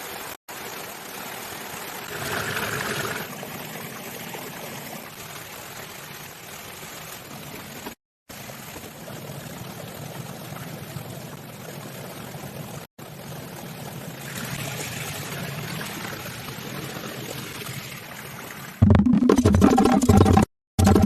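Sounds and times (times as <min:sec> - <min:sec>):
heavy rain hiss: 0:00.0 - 0:03.3.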